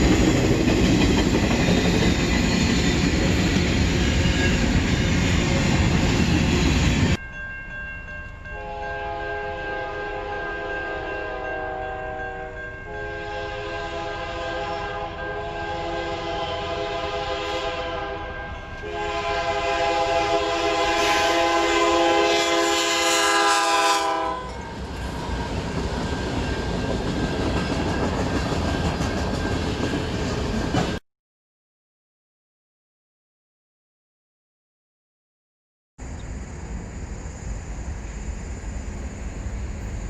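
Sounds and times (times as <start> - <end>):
train rumbling and rattling: 0.0 - 7.2, 9.8 - 31.0, 36.0 - 40.0
locomotive air horn blasts: 8.5 - 24.6.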